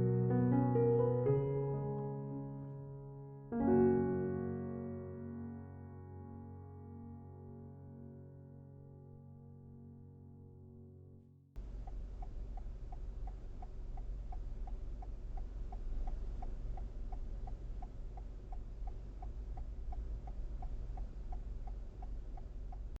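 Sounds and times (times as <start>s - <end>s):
low rumble of car: 11.6s - 23.0s
turn signal clicking: 11.6s - 23.0s.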